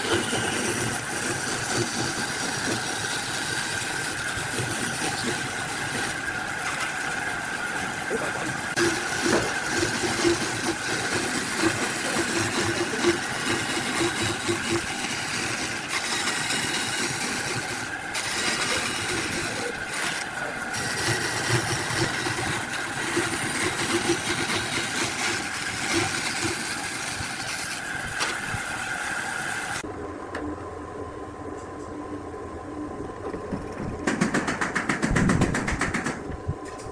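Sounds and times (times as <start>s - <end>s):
motor-driven machine whining: 0.0s - 29.9s.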